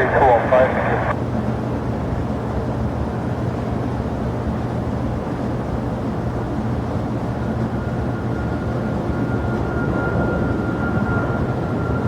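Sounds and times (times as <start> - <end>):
high whine: 0.0 - 1.1
jet engines rumbling: 0.0 - 1.2.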